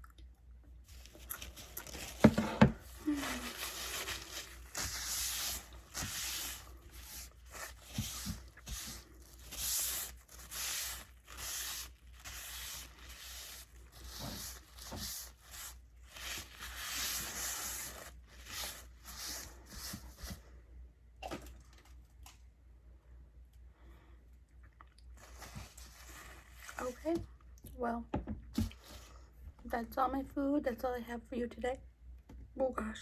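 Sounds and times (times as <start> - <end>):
chewing fries crunching: 0.9 - 2.3.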